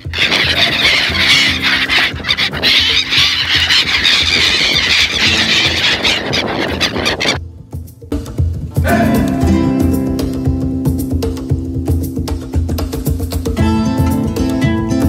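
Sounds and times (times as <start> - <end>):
gulls calling: 0.0 - 7.4
background music: 0.0 - 15.0.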